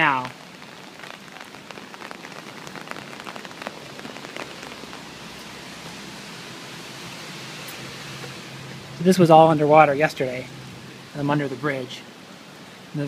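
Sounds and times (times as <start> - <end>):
light rain pattering: 0.0 - 13.0.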